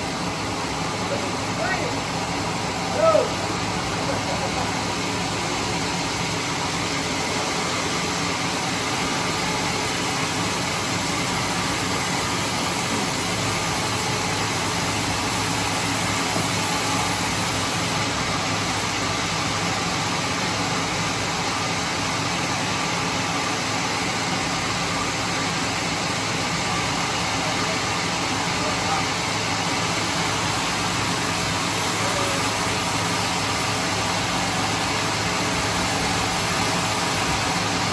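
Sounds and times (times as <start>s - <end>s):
band sawmill running: 0.0s - 37.9s.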